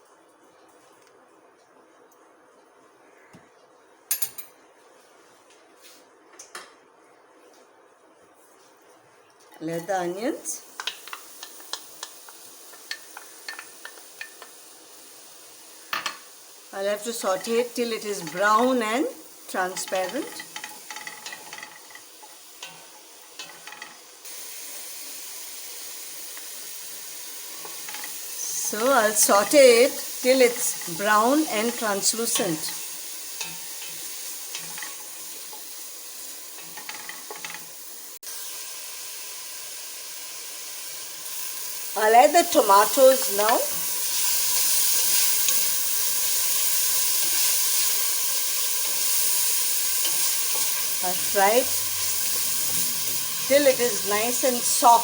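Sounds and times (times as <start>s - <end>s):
onions sizzling in a pan: 9.8s - 55.0s
spoon scraping a pan: 48.8s - 55.0s.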